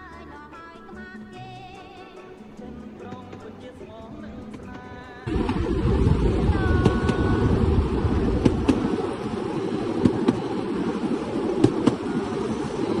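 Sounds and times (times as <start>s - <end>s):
rail vehicle rumble: 3.7s - 13.0s
wheels clacking on rail joints: 8.3s - 12.8s.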